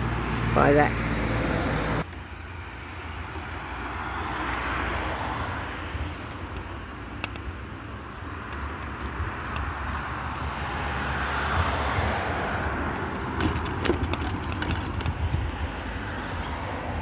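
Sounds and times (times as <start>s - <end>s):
road traffic passing: 0.0s - 17.0s
wind rumble on microphone: 5.0s - 17.0s.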